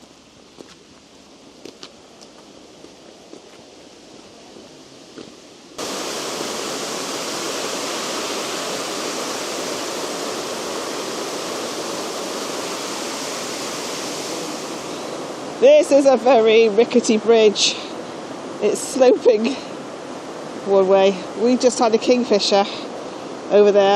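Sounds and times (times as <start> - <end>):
faint footsteps: 0.0 - 5.4
rushing water: 5.7 - 23.9.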